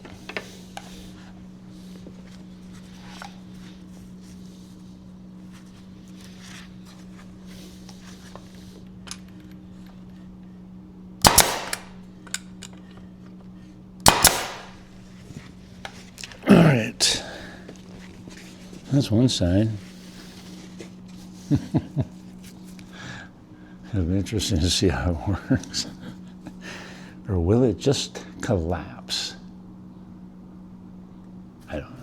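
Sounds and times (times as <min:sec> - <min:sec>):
nail gun shots: 0:11.2 - 0:12.0, 0:14.0 - 0:14.8.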